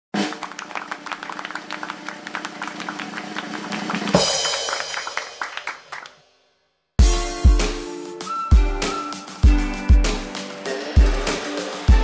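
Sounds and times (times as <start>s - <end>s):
intro music: 7.0s - 12.0s.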